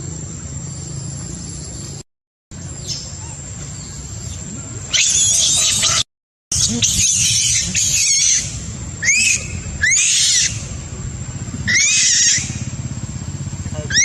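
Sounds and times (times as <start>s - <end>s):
young monkey screaming: 4.9s - 10.8s, 11.6s - 12.7s.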